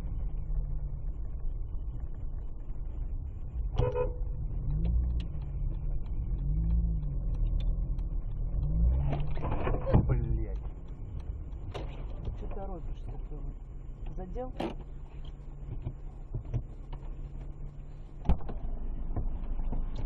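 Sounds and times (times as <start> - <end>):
car engine and road noise: 0.0 - 20.0
car horn toot: 3.8 - 4.2.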